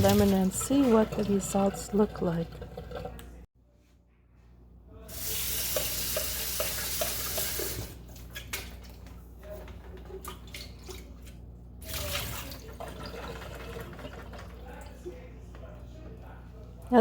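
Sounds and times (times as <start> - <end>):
water splashing into sink: 0.0 - 3.4, 5.2 - 9.2, 9.8 - 15.0.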